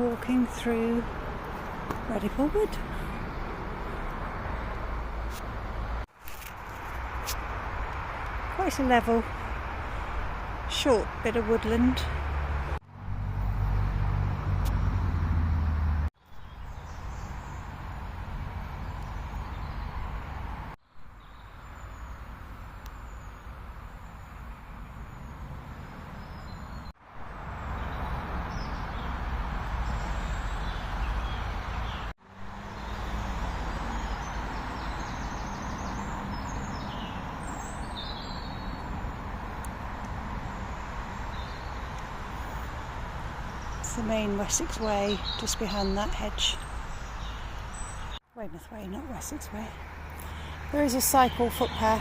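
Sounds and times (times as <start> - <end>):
road traffic roar: 0.0 - 52.0
small birds chirping: 27.5 - 52.0.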